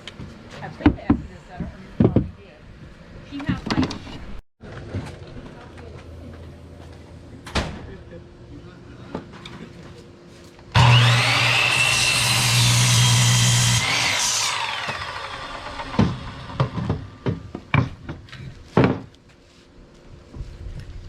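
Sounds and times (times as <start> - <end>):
power saw cutting wood: 10.7 - 17.1.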